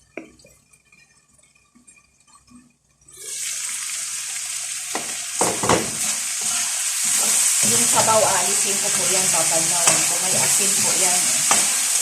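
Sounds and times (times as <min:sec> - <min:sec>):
food sizzling in a pan: 0:03.1 - 0:12.0
stirring knocks in a pan: 0:04.9 - 0:12.0.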